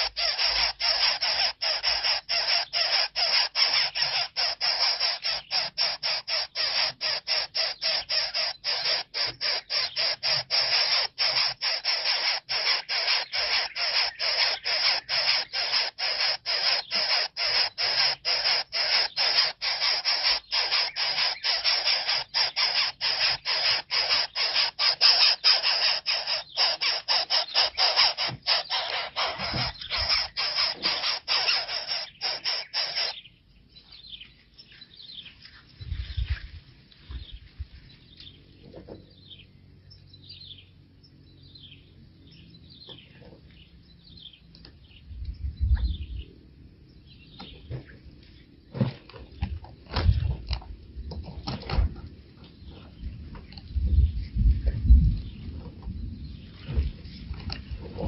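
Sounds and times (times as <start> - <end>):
harsh rasping bird calls: 0.0 - 35.5.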